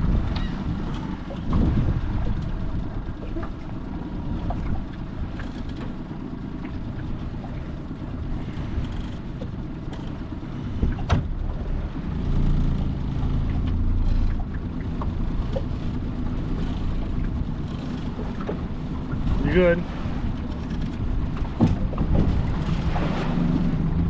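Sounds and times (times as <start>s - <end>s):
vehicle rumbling in motion: 0.0s - 24.0s
faint clicks: 5.3s - 7.6s, 8.5s - 10.4s.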